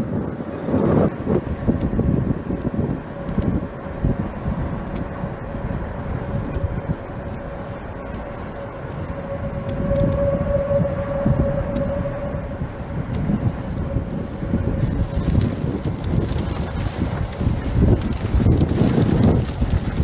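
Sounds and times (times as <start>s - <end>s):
wind buffeting microphone: 0.0s - 20.0s
warning siren steady tone: 2.0s - 15.2s.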